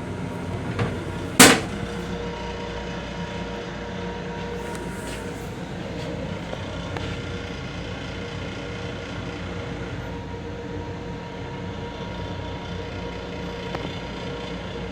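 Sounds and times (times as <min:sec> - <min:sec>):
railcar rumble and hum: 0:00.0 - 0:02.1.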